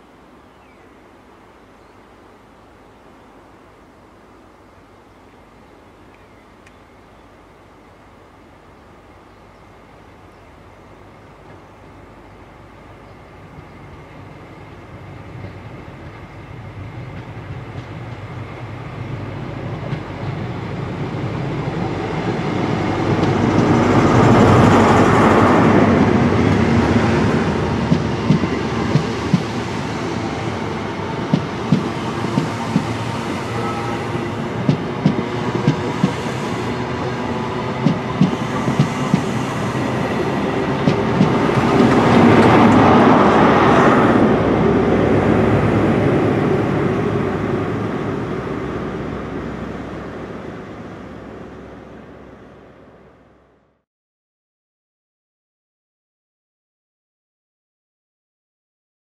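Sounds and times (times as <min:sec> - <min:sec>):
diesel train engine passing: 0:07.4 - 0:53.8
train wheels clacking over rail joints: 0:27.8 - 0:29.7, 0:31.2 - 0:33.1, 0:34.6 - 0:36.5, 0:37.7 - 0:40.0, 0:40.7 - 0:43.0.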